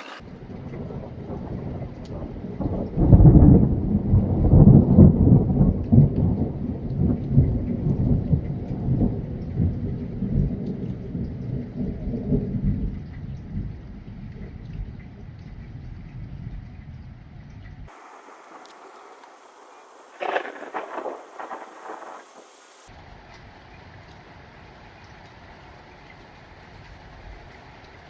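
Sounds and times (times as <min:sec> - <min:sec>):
thunder rumbling: 0:00.2 - 0:13.8, 0:17.9 - 0:22.9.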